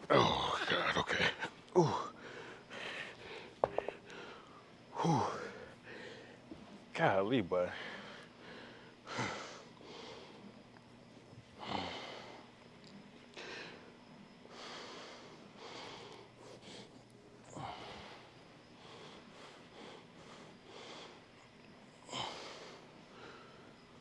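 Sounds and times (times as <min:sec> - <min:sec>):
man breathing hard: 0:01.8 - 0:06.4, 0:14.5 - 0:21.3, 0:22.0 - 0:23.8.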